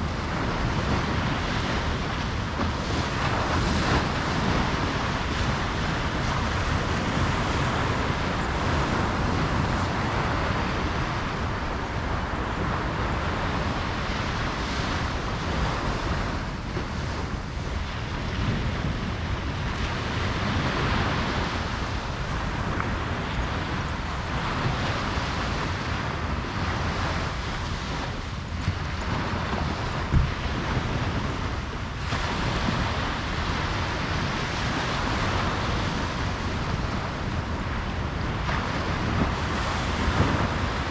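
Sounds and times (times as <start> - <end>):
ocean surf breaking on a beach: 0.0 - 40.9
wind rumbling on microphone: 0.0 - 40.9.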